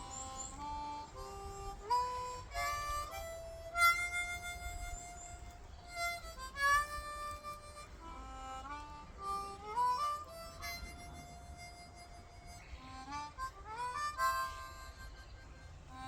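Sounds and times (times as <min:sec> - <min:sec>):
harmonica slow melody: 0:00.0 - 0:16.0.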